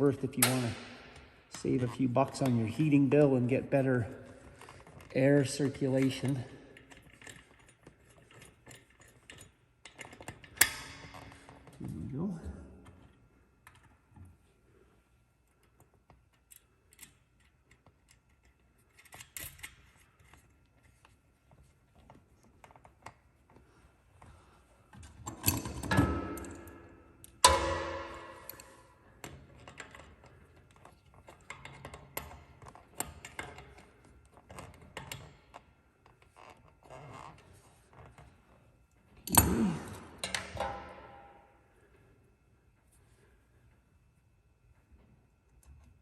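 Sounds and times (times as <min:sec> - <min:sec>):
small clicks and rustles: 0:12.8 - 0:25.9.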